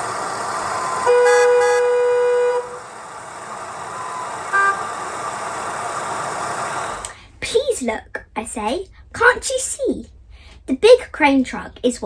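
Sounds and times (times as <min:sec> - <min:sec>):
street traffic noise: 0:00.0 - 0:07.3
car horn blast: 0:01.0 - 0:03.0, 0:04.0 - 0:05.2.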